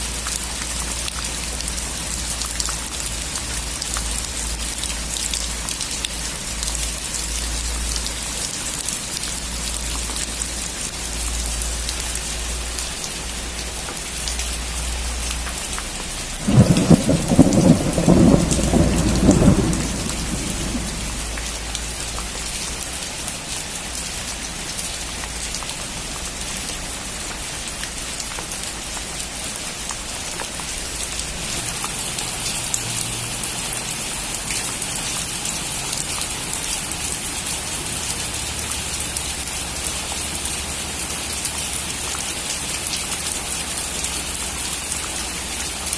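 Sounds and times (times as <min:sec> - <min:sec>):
steady rain falling: 0:00.0 - 0:45.9
thunder clap and rumble: 0:16.3 - 0:21.8.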